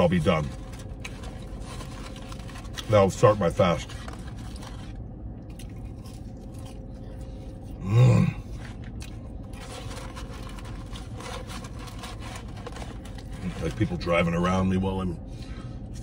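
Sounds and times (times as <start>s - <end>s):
man chewing crunchy fries: 0.0s - 16.0s
man humming mmm: 7.8s - 8.5s.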